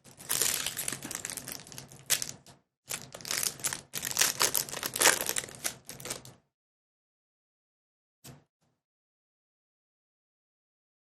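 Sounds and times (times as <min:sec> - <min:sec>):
foil wrapper crinkling: 0:00.1 - 0:06.3.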